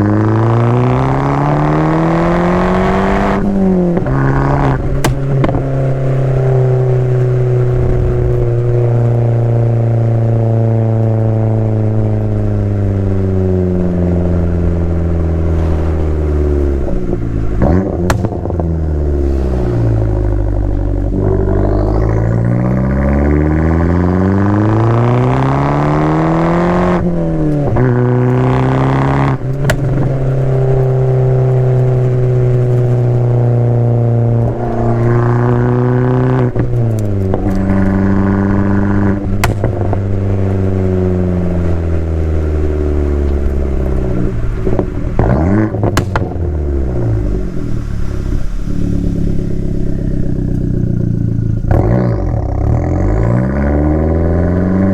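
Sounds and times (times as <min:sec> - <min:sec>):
car engine accelerating through gears: 0:00.0 - 0:54.9.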